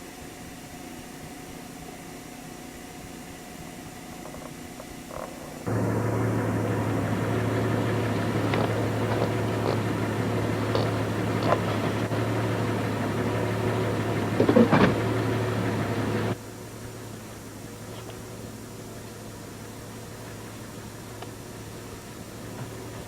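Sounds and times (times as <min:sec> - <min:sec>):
low mechanical hum with hiss: 0:00.0 - 0:23.0
loud rattle: 0:04.2 - 0:16.4.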